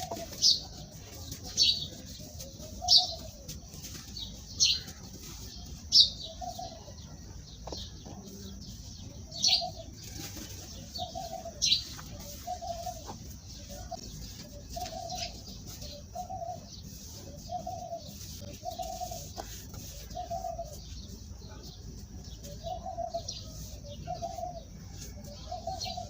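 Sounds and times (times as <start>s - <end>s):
bird cooing: 0.0s - 0.8s, 1.8s - 3.5s, 6.0s - 7.1s, 9.3s - 21.6s, 22.4s - 26.0s.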